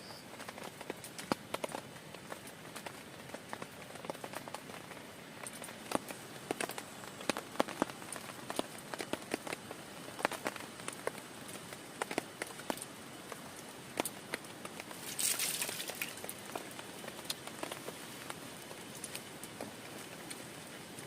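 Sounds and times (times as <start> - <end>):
rain hissing on tarp: 0.0 - 21.0
drops tapping on tarp: 0.3 - 20.8.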